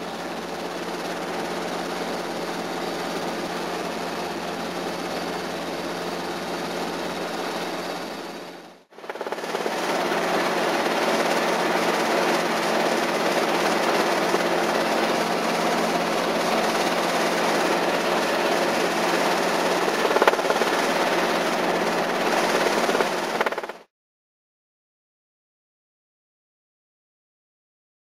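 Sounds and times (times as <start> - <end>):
helicopter engine and rotors: 0.0 - 23.9.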